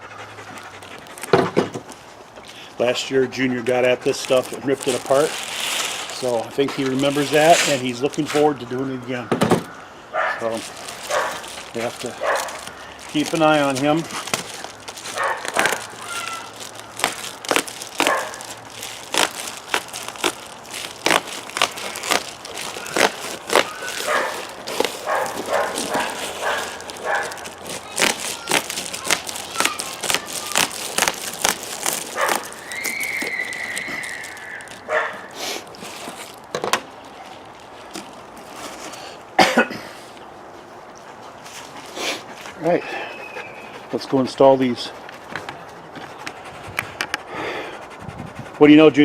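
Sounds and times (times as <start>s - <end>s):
foil insulation crinkling: 0.8s - 1.3s, 1.9s - 39.2s.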